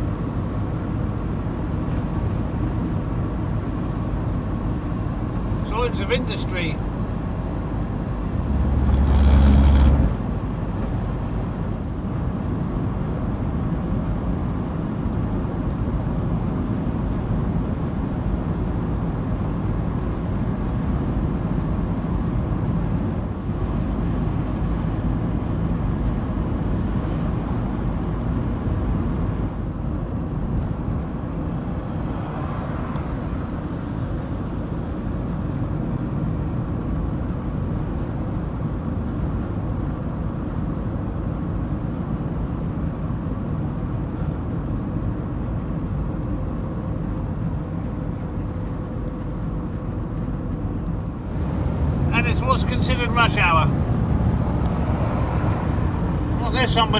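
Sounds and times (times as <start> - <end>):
van engine rumble: 0.0 - 56.9.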